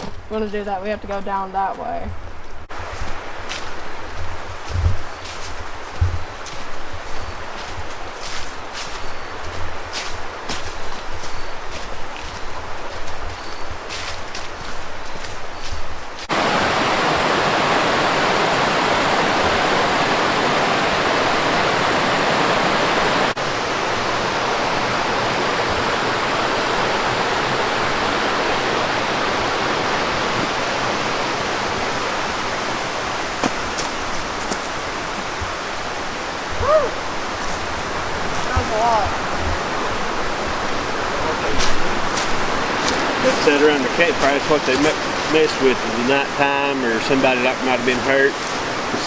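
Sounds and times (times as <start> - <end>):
rushing whitewater: 16.1 - 49.0.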